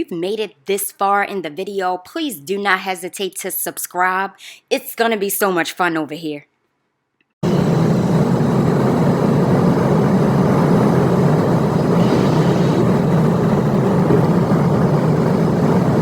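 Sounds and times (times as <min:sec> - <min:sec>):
car road and engine noise: 0:08.4 - 0:16.0.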